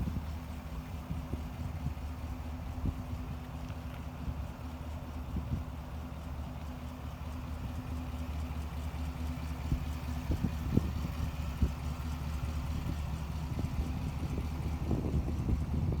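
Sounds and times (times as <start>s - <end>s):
pickup engine idling: 0.0s - 16.0s.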